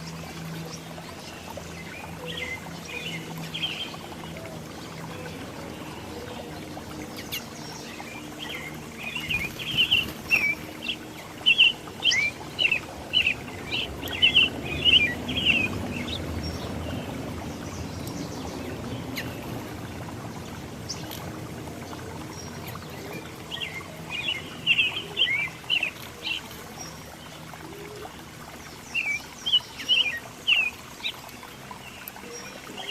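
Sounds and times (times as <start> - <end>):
songbird chirping: 0.0 - 21.3.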